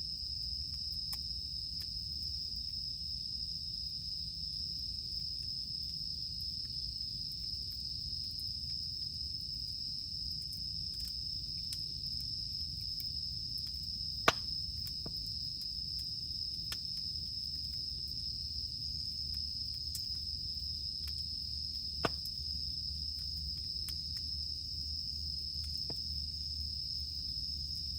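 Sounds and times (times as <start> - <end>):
cicadas droning: 0.0 - 27.9
campfire crackling: 10.1 - 18.2, 19.0 - 22.5
fire popping: 14.2 - 15.3, 22.0 - 22.4.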